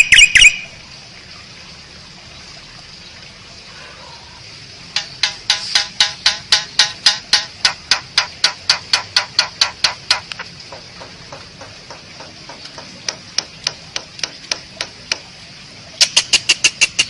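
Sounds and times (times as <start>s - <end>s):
starling clicking calls: 0.0s - 0.7s, 5.0s - 15.2s, 16.0s - 17.0s.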